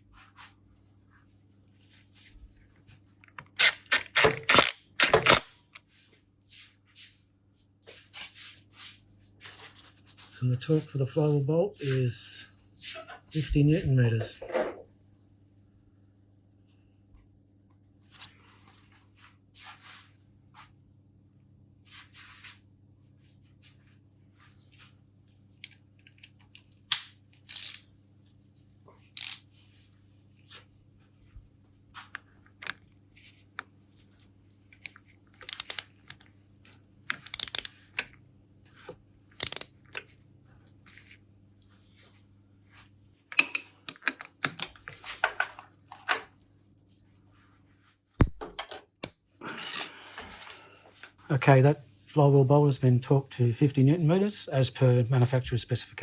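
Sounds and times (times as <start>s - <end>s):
wrench clicking: 27.5s - 27.8s, 35.4s - 35.9s, 37.1s - 37.8s, 39.4s - 39.7s.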